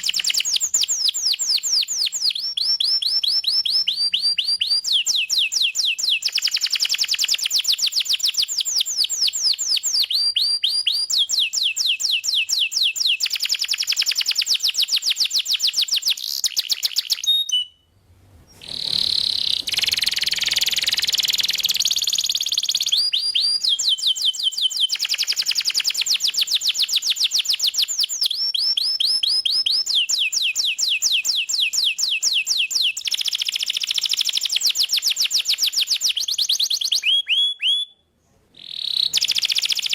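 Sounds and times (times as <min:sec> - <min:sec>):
canary singing trills: 0:18.6 - 0:37.9, 0:38.6 - 0:39.9.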